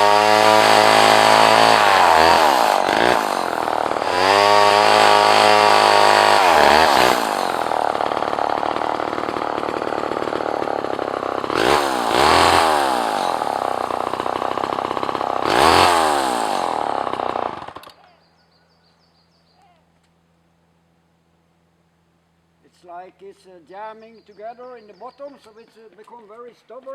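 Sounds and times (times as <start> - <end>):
chainsaw revving and idling: 0.0 - 18.0.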